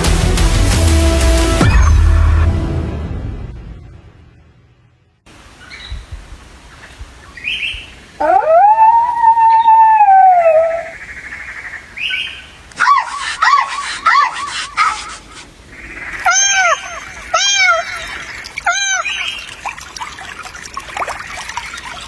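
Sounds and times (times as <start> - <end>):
dog howling: 8.2 - 10.9, 16.2 - 18.0
dog yelping: 8.2 - 10.9, 12.8 - 15.4, 16.2 - 19.3.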